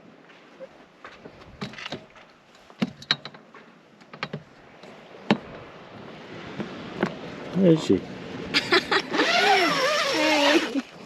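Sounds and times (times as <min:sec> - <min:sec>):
sharp clicks and knocks: 0:01.6 - 0:04.5.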